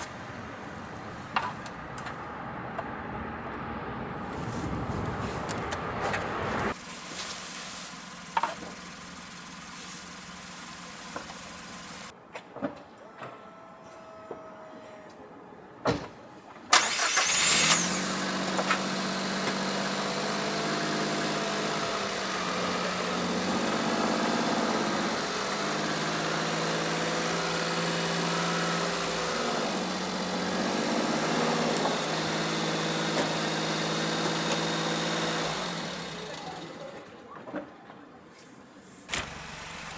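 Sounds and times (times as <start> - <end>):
truck engine cranking and starting: 3.5 - 12.1, 16.7 - 37.6, 39.1 - 39.9
truck engine idling: 4.4 - 12.1, 16.8 - 20.0, 39.1 - 39.9.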